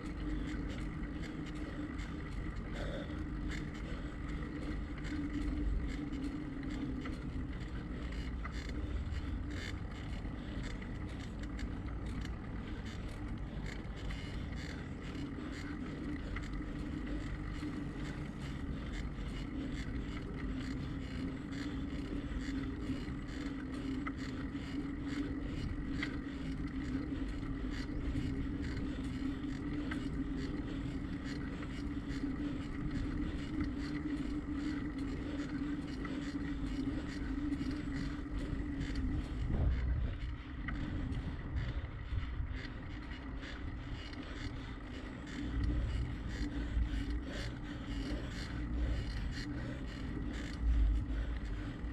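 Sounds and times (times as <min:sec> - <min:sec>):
bicycle tyres rolling on pavement: 0:00.0 - 0:51.9
wind rumble on microphone: 0:24.4 - 0:51.9.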